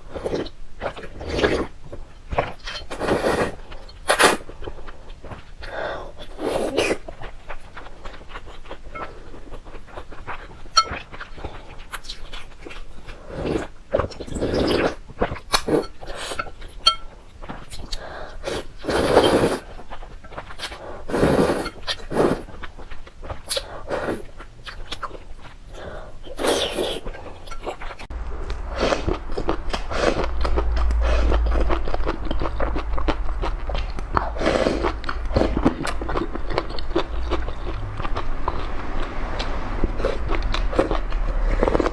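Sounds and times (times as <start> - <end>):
slurping and chewing noodles: 0.0 - 41.9
low rumble: 28.1 - 41.9.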